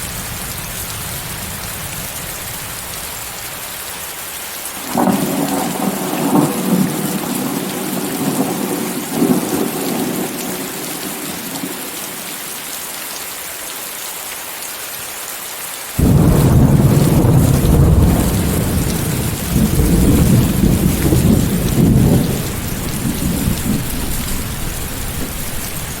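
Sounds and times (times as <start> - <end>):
heavy rain hissing: 0.0 - 26.0
rolling thunder rumbling: 4.8 - 12.2, 16.0 - 26.0.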